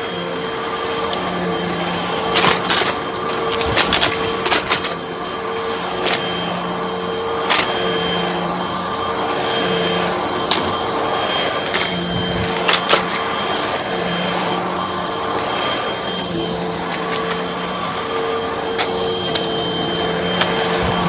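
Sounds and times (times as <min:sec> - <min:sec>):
vacuum cleaner humming: 0:00.0 - 0:21.0
debris clicking and crackling: 0:02.2 - 0:06.5, 0:07.4 - 0:08.0, 0:10.4 - 0:10.9.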